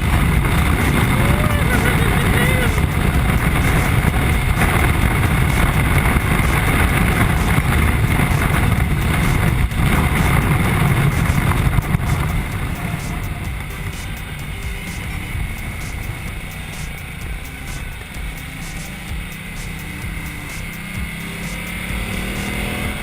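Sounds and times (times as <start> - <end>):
wind noise: 0.0 - 18.3
motorcycle engine running: 0.0 - 23.0.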